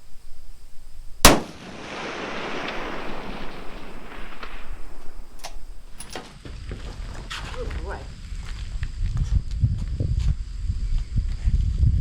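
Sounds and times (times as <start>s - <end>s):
rifle shot with echo: 1.2s - 6.0s.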